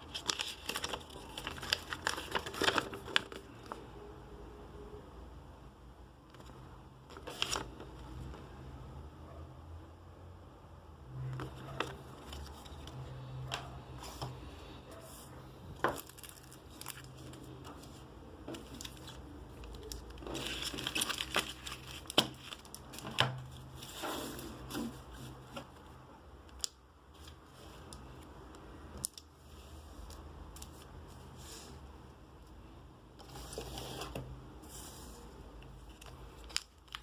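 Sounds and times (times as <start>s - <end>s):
packaging crinkling and tearing: 0.0s - 3.8s, 15.8s - 17.6s, 18.6s - 23.2s, 35.9s - 37.0s
packaging rustling: 0.0s - 3.8s, 15.8s - 23.7s.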